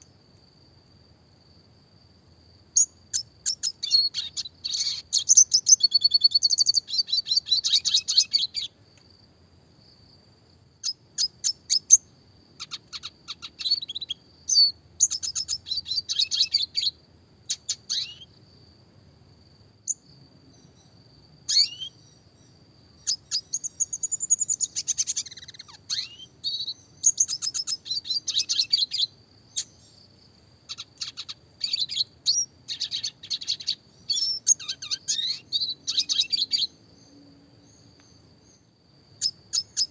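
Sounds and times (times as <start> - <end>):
bird twittering and trilling: 2.8 - 8.7, 12.6 - 18.3, 21.5 - 30.0, 30.7 - 37.1, 39.2 - 39.9.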